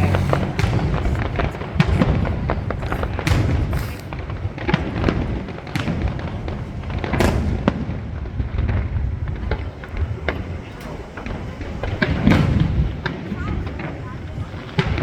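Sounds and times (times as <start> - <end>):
steady low rumble: 0.0 - 4.6
fireworks bangs and crackling: 0.0 - 15.0.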